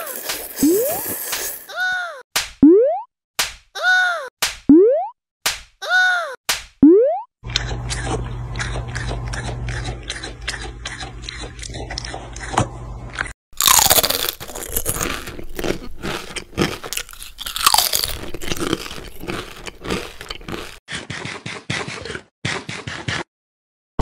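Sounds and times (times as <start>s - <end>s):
crunching and chewing snack food: 7.5s - 21.6s.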